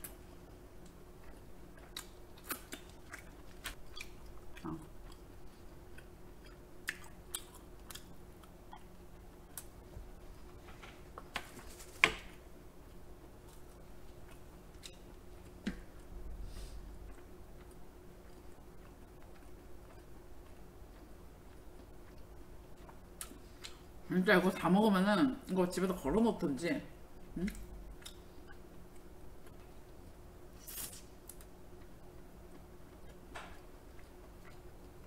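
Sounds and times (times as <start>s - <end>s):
close chewing: 16.8s - 23.8s.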